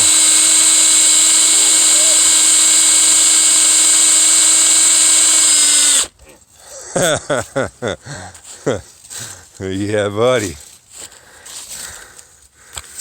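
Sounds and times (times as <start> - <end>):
electric motor humming: 0.0 - 6.1.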